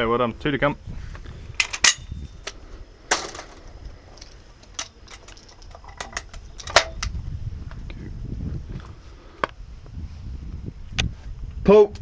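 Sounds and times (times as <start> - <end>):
shotgun being handled and reloaded: 1.6 - 7.1.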